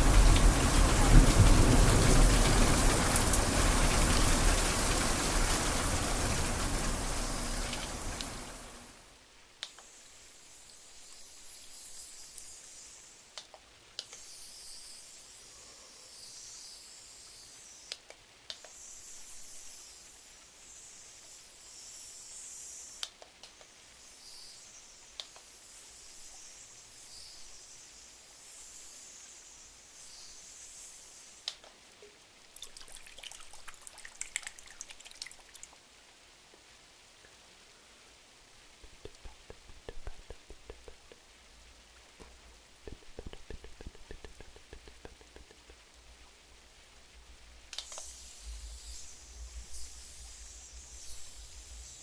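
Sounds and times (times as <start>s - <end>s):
rain pattering on window glass: 0.0s - 9.1s, 32.6s - 35.9s, 38.5s - 48.2s
wood fire crackling: 0.0s - 9.1s.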